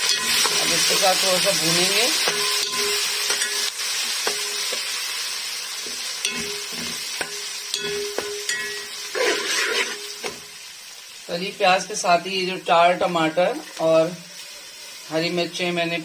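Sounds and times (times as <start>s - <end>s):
onions sizzling in hot oil: 0.0s - 16.0s
metal spatula scraping pot: 6.2s - 10.4s.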